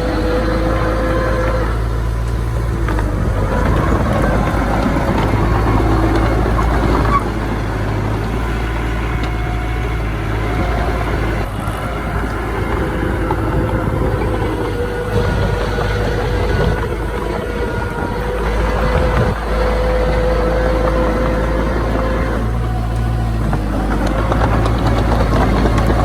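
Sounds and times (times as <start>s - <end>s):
diesel earthmoving machinery running: 0.0s - 26.0s.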